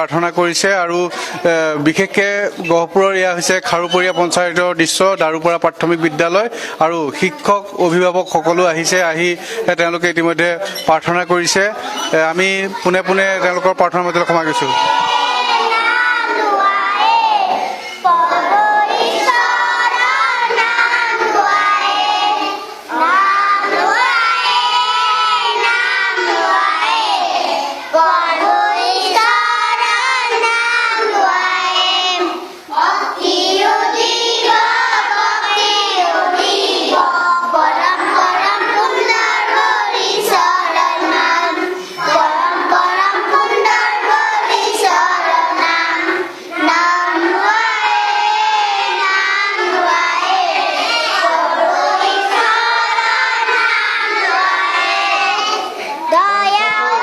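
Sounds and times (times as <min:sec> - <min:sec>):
children singing together: 0:11.6 - 0:57.0.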